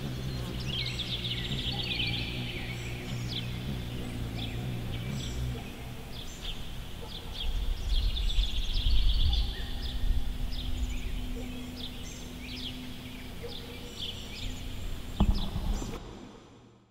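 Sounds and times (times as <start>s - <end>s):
songbirds chirping: 0.0s - 16.6s
low outdoor rumble: 0.0s - 16.7s
sharp thump: 15.2s - 16.2s.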